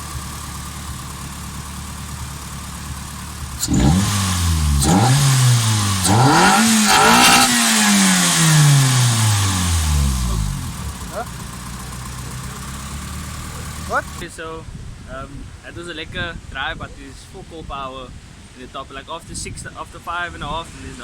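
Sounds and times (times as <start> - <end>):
car engine revving: 0.0 - 14.2
loud intake noise: 0.0 - 14.2.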